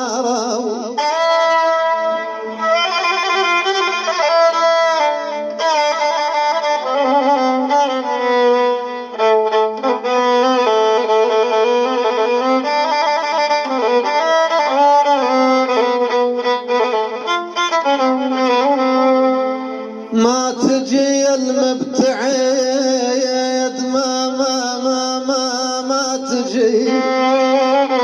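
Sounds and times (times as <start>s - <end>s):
violin melody: 0.0s - 28.0s.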